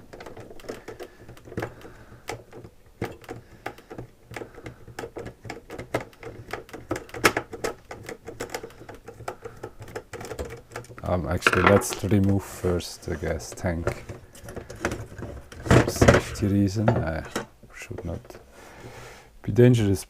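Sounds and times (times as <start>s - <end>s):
screwdriver clicking on plastic: 0.0s - 11.0s.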